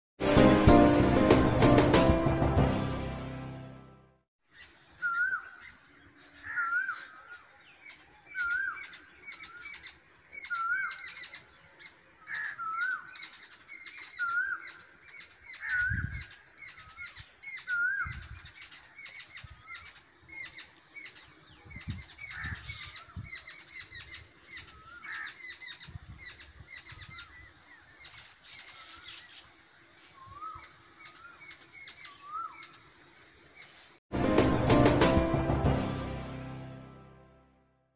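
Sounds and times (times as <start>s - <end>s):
birds chirping: 4.4s - 34.0s.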